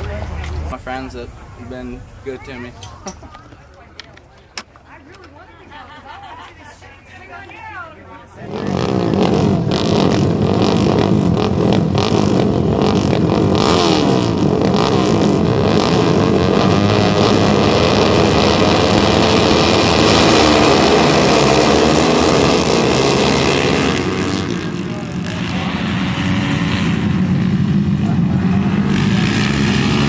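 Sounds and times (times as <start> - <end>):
racing motorcycle engines: 8.0 - 30.0.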